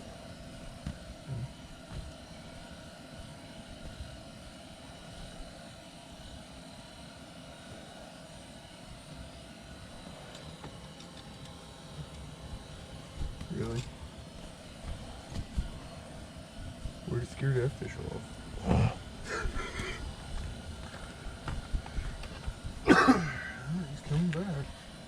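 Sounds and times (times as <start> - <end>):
faint steady tones: 0.0 - 25.0
strong wind buffeting shelter: 11.9 - 25.0.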